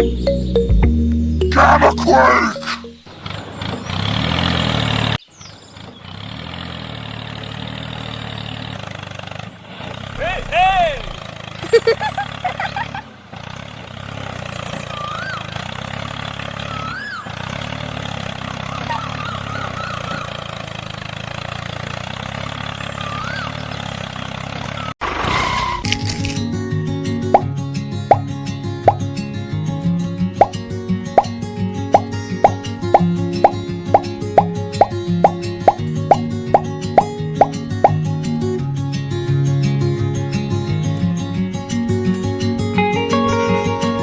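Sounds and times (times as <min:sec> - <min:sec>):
small engine running: 0:03.1 - 0:25.3.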